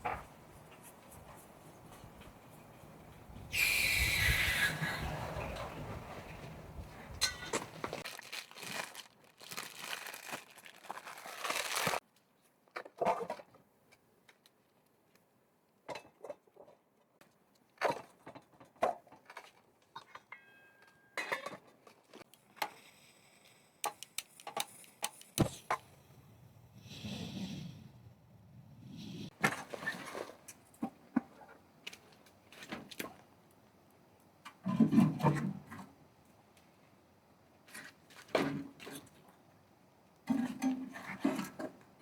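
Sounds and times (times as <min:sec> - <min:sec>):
rustling and crinkling: 0:05.8 - 0:13.4.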